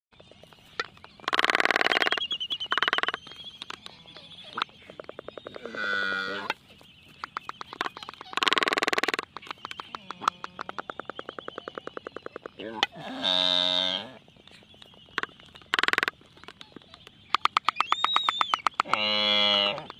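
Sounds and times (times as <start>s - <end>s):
albatross bill clattering: 0.2s - 13.2s
albatross mooing groan: 5.6s - 6.5s, 12.6s - 14.2s
albatross bill clicks: 7.2s - 13.0s, 14.4s - 19.1s.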